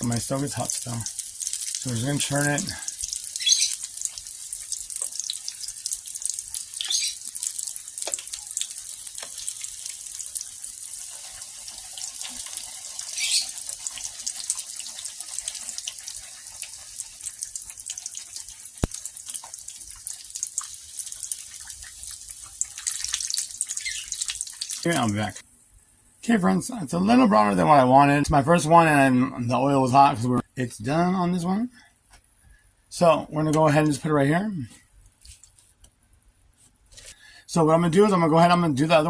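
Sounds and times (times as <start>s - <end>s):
food deep-frying in oil: 0.0s - 25.4s
oil popping: 0.0s - 25.4s.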